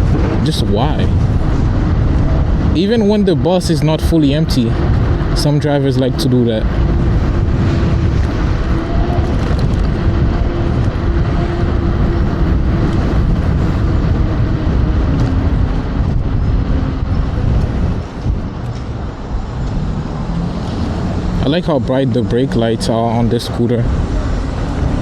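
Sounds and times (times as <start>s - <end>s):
road noise: 0.0s - 25.0s
wind buffeting microphone: 0.0s - 25.0s.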